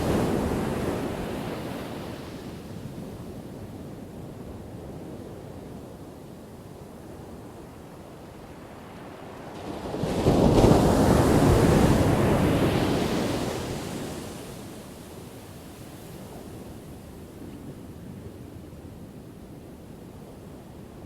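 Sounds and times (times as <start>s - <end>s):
ocean surf wash: 0.0s - 4.0s, 8.2s - 21.0s.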